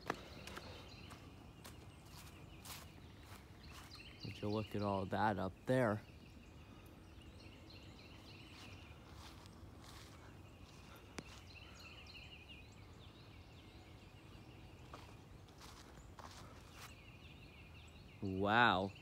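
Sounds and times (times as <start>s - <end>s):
soft rustling footsteps: 0.0s - 4.8s, 8.1s - 12.2s, 14.3s - 17.1s
faint bird calls chattering: 0.0s - 19.0s.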